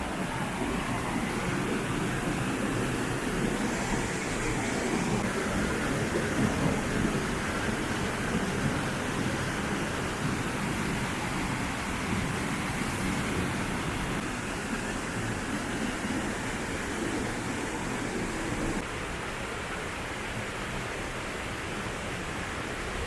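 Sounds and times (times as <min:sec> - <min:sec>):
river water rushing over rocks: 0:00.0 - 0:23.0.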